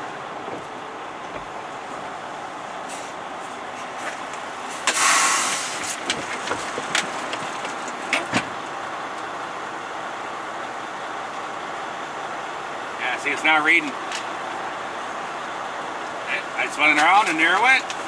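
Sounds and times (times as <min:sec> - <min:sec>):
diesel engine idling: 0:00.0 - 0:18.0
air brakes hissing: 0:04.7 - 0:06.0.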